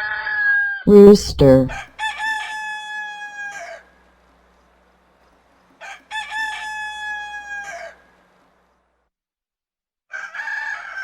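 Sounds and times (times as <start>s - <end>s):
rooster crowing: 10.1s - 11.0s.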